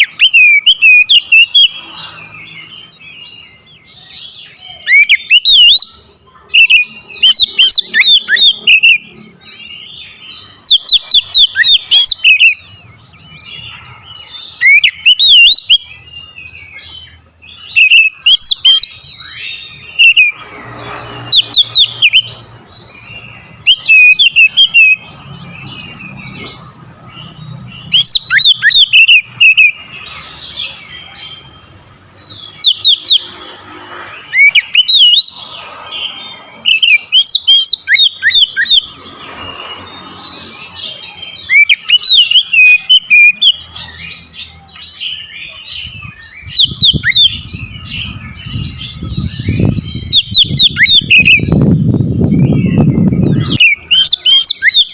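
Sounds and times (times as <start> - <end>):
bird singing whistles and chatter: 0.0 - 54.9.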